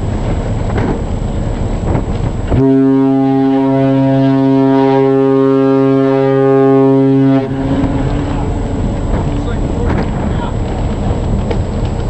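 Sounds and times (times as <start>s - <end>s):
ship's horn blast: 2.5s - 10.3s.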